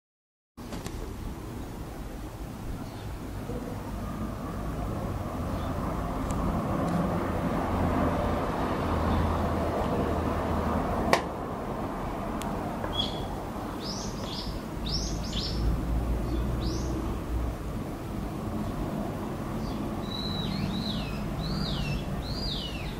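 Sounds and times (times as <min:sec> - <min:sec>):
bird high upward calls: 0:12.9 - 0:15.6, 0:19.6 - 0:22.9.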